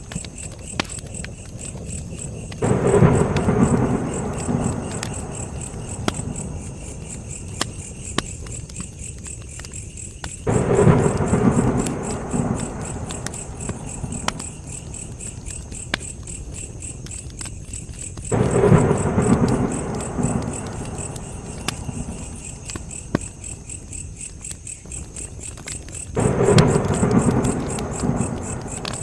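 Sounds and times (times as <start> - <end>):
campfire crackling and popping: 0.0 - 29.0
crickets chirping: 0.0 - 29.0
low rumbling rush: 10.5 - 15.1, 18.3 - 23.0, 26.2 - 29.0.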